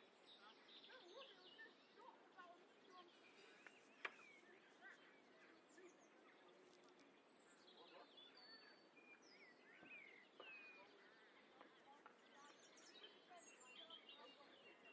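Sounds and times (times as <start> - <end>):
birds chirping and whistling: 7.4 - 11.4.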